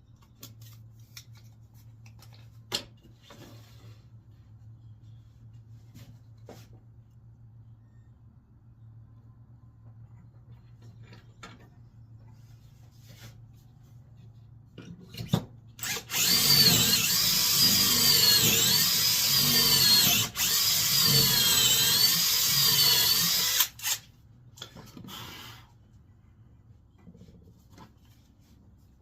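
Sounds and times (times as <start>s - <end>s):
power drill boring into wood: 15.8s - 24.0s.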